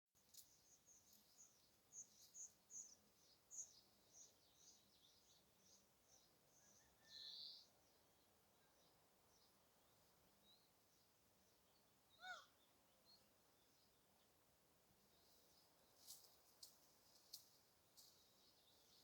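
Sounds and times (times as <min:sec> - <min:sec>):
birds chirping faintly: 0:00.2 - 0:19.0
loud bird call: 0:12.2 - 0:12.6.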